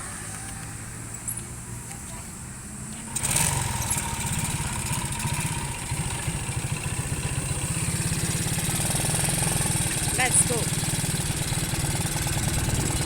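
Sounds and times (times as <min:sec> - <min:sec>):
motorcycle engine idling: 0:03.0 - 0:13.0.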